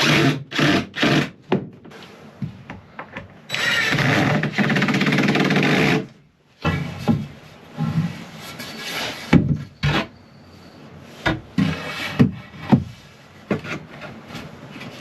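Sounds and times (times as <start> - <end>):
wooden knocks and thuds: 6.6 - 7.4, 9.3 - 9.7.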